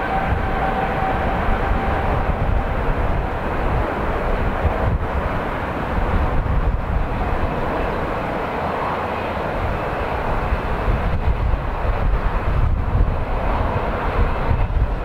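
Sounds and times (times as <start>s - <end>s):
jet engines rushing: 0.0s - 15.0s
wind buffeting microphone: 0.0s - 15.0s.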